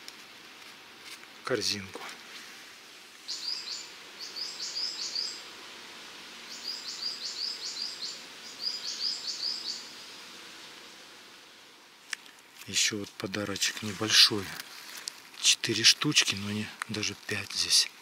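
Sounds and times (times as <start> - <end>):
faint forest background: 0.0 - 18.0
songbird singing: 3.2 - 5.5, 6.4 - 10.2.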